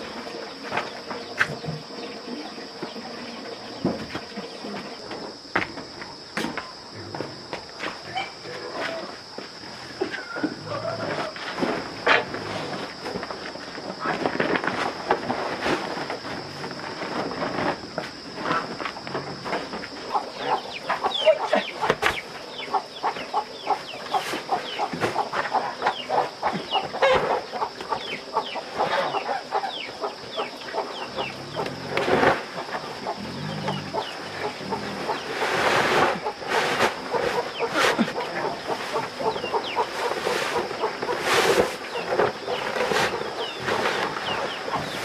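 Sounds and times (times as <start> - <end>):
rustling noise: 11.1 - 20.0, 31.7 - 33.0, 34.7 - 45.0.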